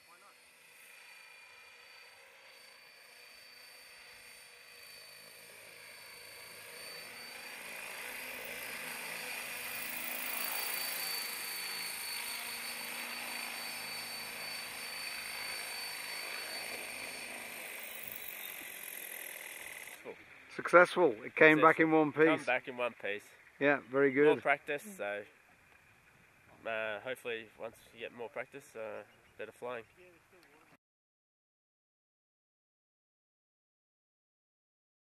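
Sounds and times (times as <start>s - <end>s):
high motor whine: 0.0s - 25.2s
rc helicopter rotor blades rushing: 0.0s - 30.7s.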